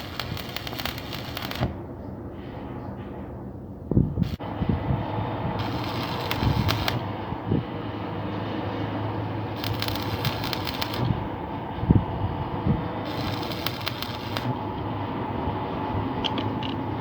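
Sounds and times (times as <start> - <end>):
welding arc crackling: 0.0 - 1.8, 4.2 - 4.6, 5.4 - 7.3, 9.2 - 11.4, 12.9 - 14.7
steady low hum: 0.0 - 17.0.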